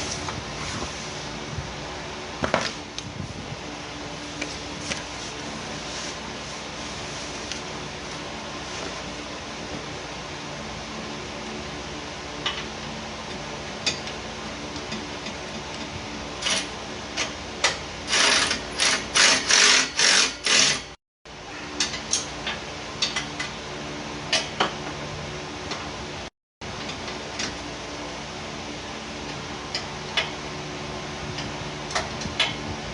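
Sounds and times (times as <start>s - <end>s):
steady low hum: 0.0s - 18.9s
rasping ratchet strokes: 18.1s - 21.0s.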